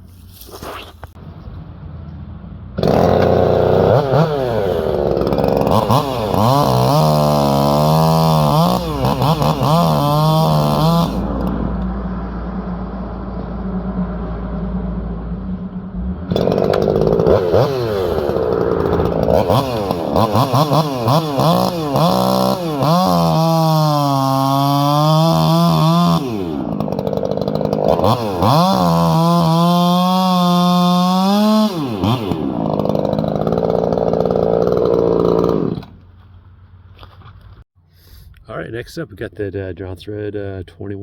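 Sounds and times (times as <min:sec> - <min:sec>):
chainsaw cutting log: 0:02.8 - 0:11.9, 0:16.3 - 0:36.2.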